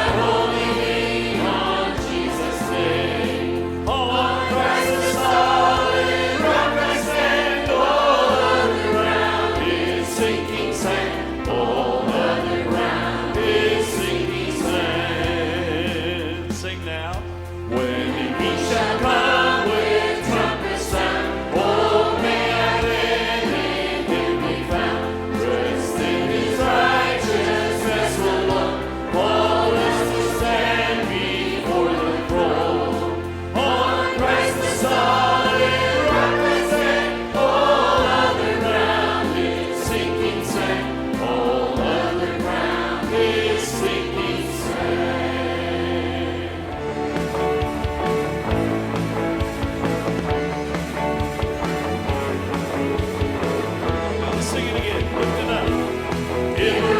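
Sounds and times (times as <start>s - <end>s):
bass line: 0.0s - 56.9s
choir singing gospel: 0.0s - 56.9s
instrumental accompaniment: 0.0s - 56.9s.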